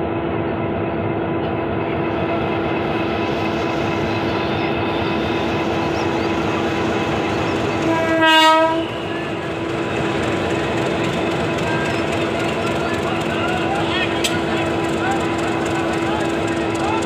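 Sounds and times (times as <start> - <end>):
train carriages humming and rattling: 0.0 - 17.0
loud train horn blast: 7.8 - 9.3.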